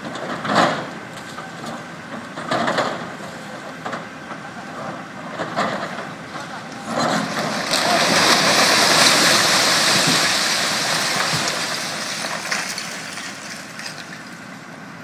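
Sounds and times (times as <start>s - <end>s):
concrete rubble crashing down: 7.2s - 14.2s.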